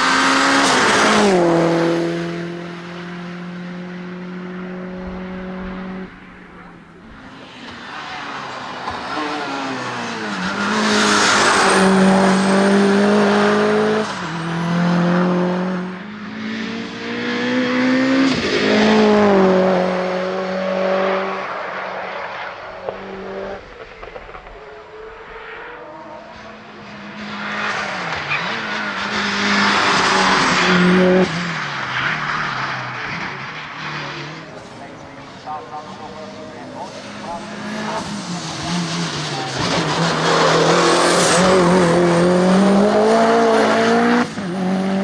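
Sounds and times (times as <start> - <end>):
race car engine running hard: 17.6 - 45.0.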